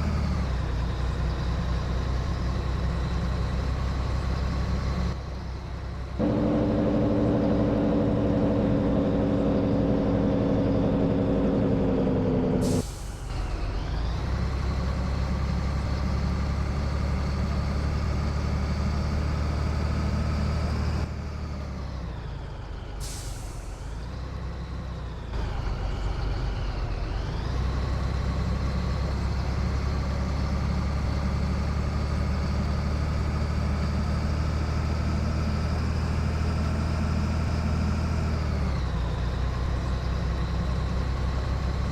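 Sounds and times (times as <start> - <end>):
truck engine pulling under load: 6.0 - 41.9
air brake hiss: 12.6 - 13.4, 23.0 - 23.9.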